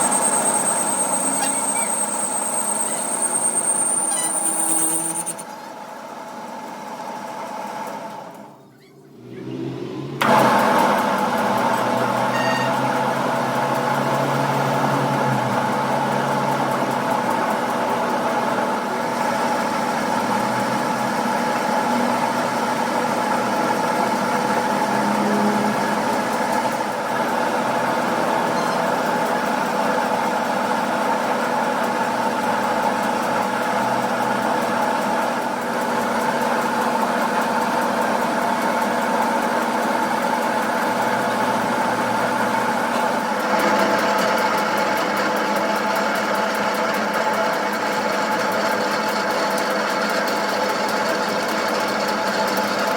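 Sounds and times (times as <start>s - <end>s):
machine motor humming: 10.2s - 31.7s.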